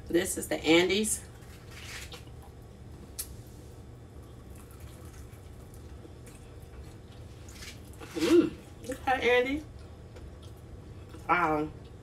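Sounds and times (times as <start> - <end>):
steady low hum: 0.0 - 12.0
faint chewing: 4.2 - 9.0, 9.7 - 12.0.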